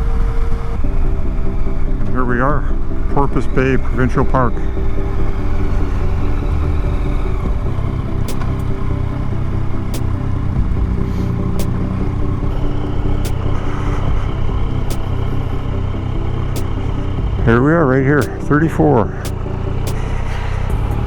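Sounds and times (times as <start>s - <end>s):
motorcycle engine running: 5.4s - 18.4s.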